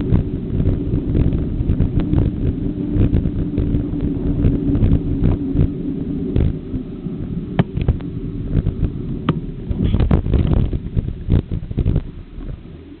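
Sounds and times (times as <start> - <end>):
wind buffeting microphone: 0.0 - 13.0
bicycle knocks and rattles: 7.6 - 8.0.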